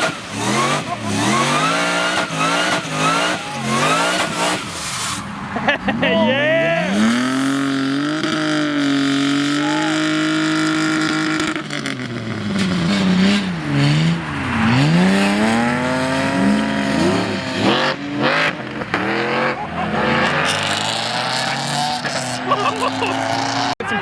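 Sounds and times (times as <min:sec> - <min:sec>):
car engine revving: 0:00.0 - 0:23.8
sharp exhaust cracks: 0:06.8 - 0:23.7.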